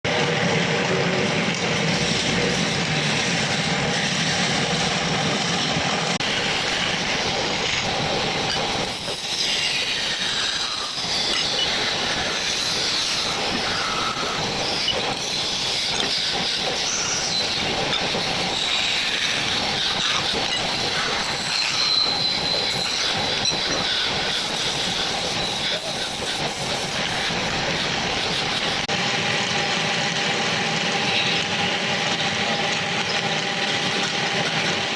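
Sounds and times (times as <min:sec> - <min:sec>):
power tool cutting wood: 0:06.2 - 0:29.0.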